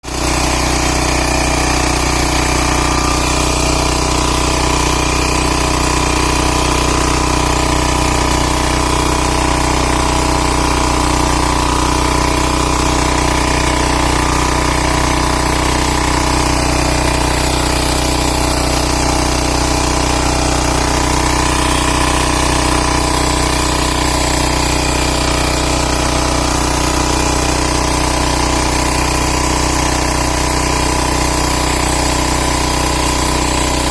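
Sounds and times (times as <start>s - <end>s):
power tiller engine running: 0.0s - 33.9s.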